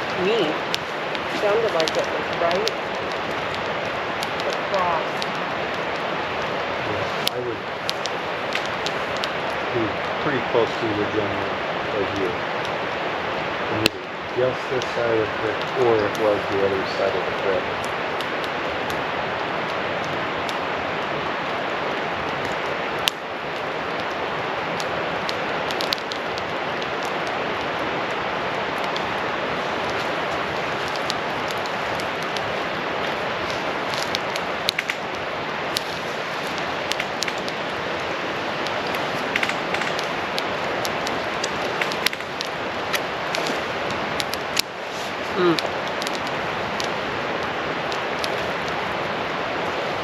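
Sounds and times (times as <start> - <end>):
campfire crackling and popping: 0.0 - 50.0
rushing hiss: 13.4 - 17.6.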